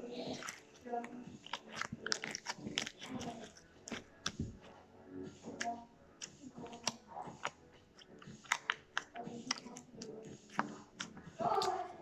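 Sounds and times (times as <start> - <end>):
slime squeezed with clicks and pops: 8.4 - 9.9.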